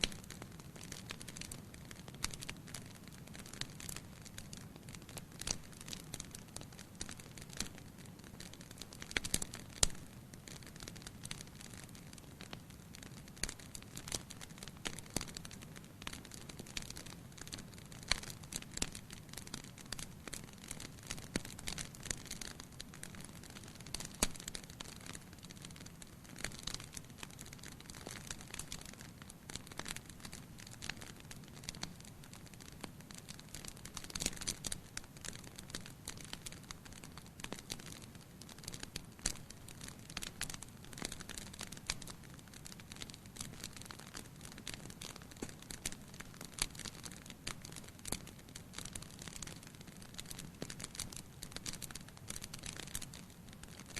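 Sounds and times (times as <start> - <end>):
fire crackling and popping: 0.0 - 53.9.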